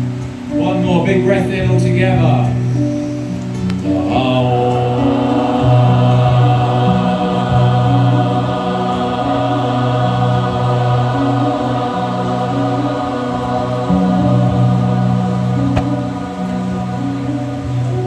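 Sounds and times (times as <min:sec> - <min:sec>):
music with shifting chords: 0:00.0 - 0:18.0
group chanting in held notes: 0:02.6 - 0:18.0.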